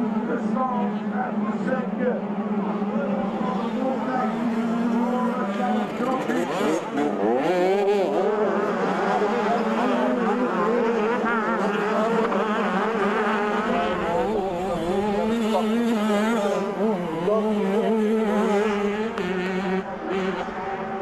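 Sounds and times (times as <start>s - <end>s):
motocross bikes revving: 0.0s - 21.0s.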